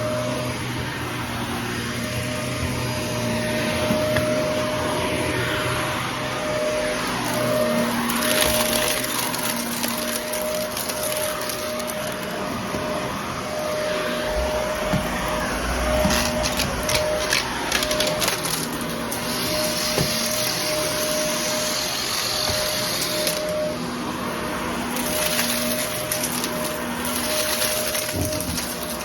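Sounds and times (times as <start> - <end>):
vacuum cleaner running: 0.0 - 29.0
debris crackling in vacuum: 0.1 - 29.0.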